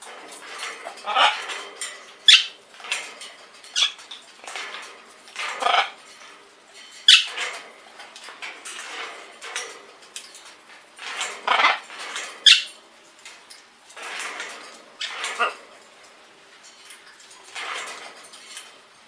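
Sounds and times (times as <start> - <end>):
pet birds squawking: 2.3 - 2.6, 12.4 - 12.8.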